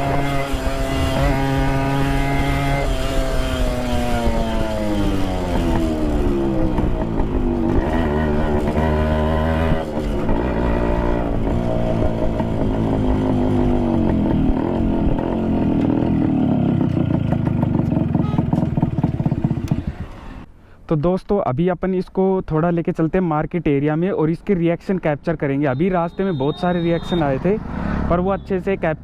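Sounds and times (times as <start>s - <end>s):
two-stroke motorcycle engine: 0.0s - 20.4s.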